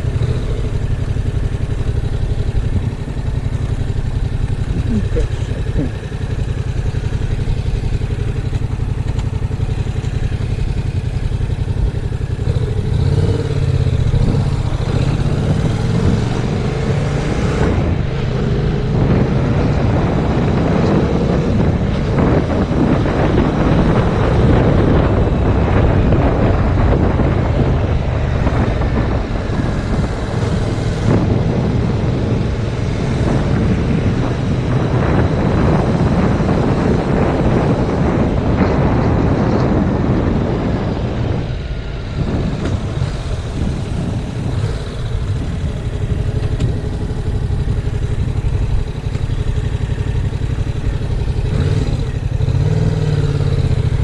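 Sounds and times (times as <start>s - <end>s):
motorcycle engine running: 0.0s - 54.0s
wind rush on microphone: 0.0s - 54.0s.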